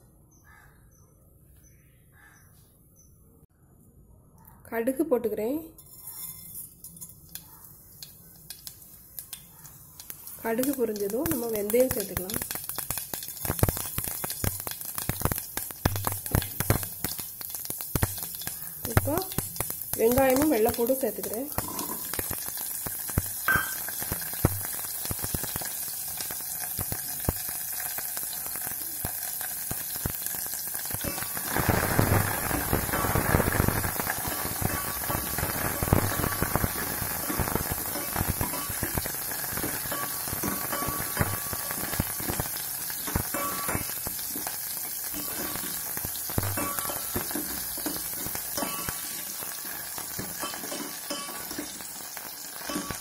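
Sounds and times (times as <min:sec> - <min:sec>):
steel spoon scraping a pot: 0:05.8 - 0:08.6
food sizzling in hot oil: 0:05.8 - 0:53.0.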